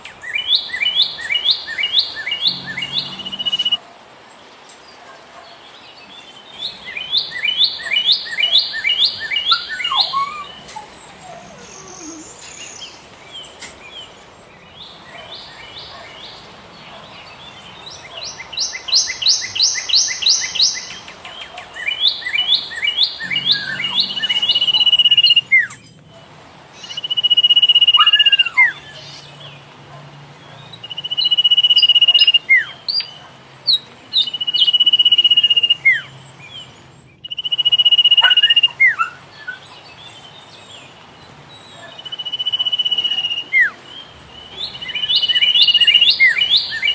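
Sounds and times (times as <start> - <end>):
bird chirping: 0.0 - 3.8, 5.4 - 29.8, 30.4 - 46.9
bird whistling: 0.2 - 3.8, 6.9 - 12.9, 18.2 - 21.1, 21.8 - 25.9, 26.8 - 28.8, 30.9 - 32.7, 34.2 - 36.1, 37.2 - 39.6, 41.8 - 43.8, 44.5 - 46.9.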